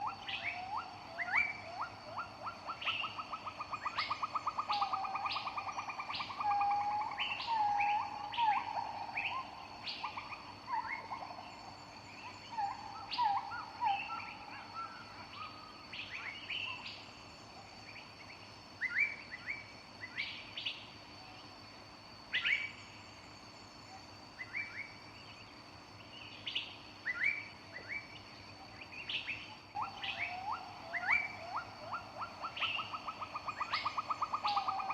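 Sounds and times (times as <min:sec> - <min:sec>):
birds singing: 0:00.0 - 0:17.2, 0:24.4 - 0:34.9.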